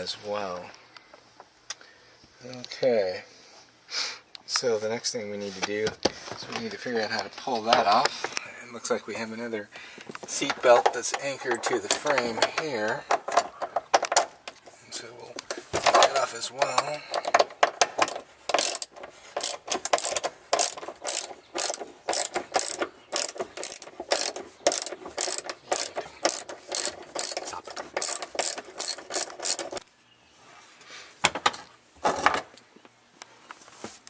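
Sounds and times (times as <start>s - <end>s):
hand ratchet clicking: 10.4s - 14.2s, 16.6s - 29.8s.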